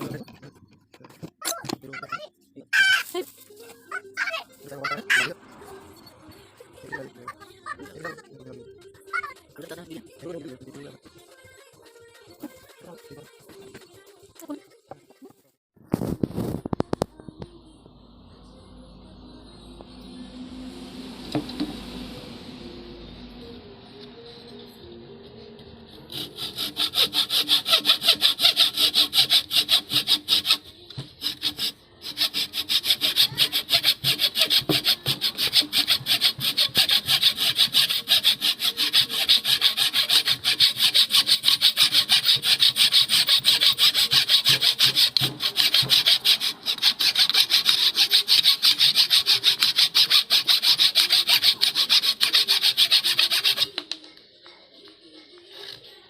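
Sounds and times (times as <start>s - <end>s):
hand saw cutting wood: 26.0s - 53.8s.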